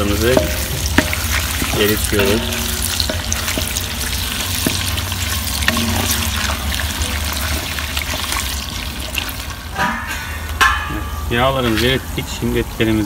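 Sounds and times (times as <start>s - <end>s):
wooden spoon knocking pot: 0.0s - 7.3s
fat sizzling in a pot: 0.0s - 10.6s.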